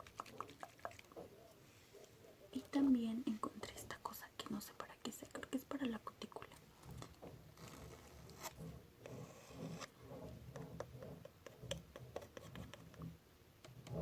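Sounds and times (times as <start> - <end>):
cuticle tool scratching: 6.9 - 13.2.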